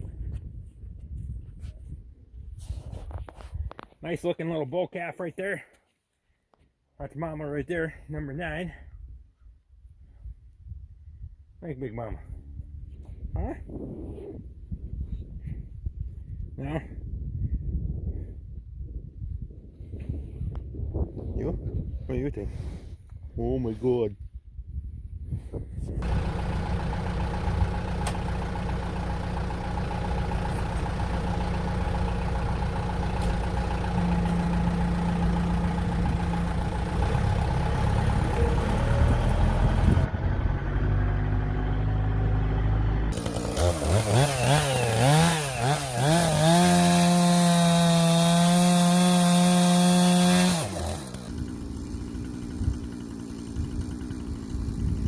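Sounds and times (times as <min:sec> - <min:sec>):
chainsaw revving: 0:26.0 - 0:40.1, 0:43.1 - 0:55.0
engine running: 0:26.0 - 0:55.0.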